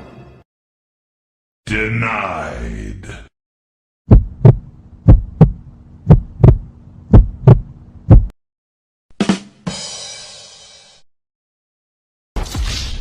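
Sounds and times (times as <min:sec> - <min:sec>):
low steady hum: 0:04.1 - 0:08.3
heartbeat thumps: 0:04.1 - 0:08.4.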